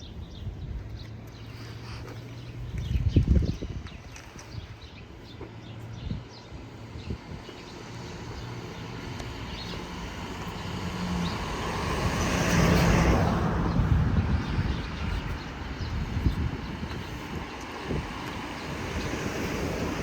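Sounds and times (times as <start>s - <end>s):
vehicle passing by: 5.9s - 20.0s.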